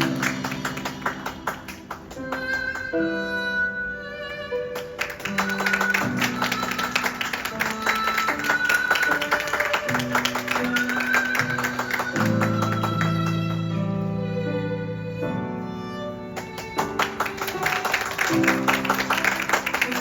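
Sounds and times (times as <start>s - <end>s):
held melody line: 0.0s - 14.2s.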